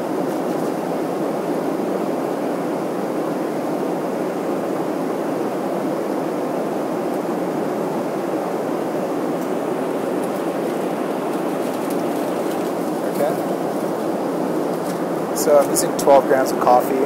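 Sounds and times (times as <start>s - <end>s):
airliner cabin jet engine rush: 0.0s - 17.0s.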